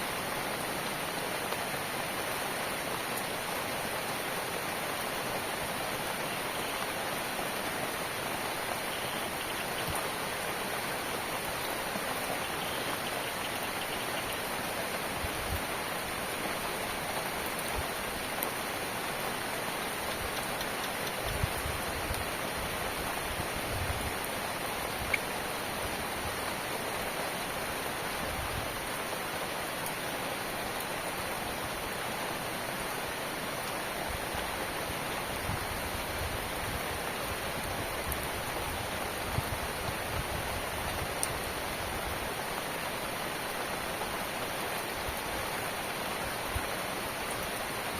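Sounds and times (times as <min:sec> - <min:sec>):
rain falling: 0:00.0 - 0:47.9
sharp drip ticks: 0:19.8 - 0:21.5.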